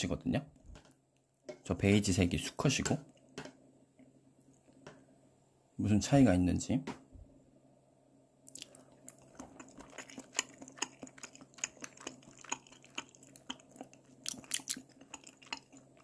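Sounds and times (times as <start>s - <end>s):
wet chewing clicks: 8.5s - 16.0s.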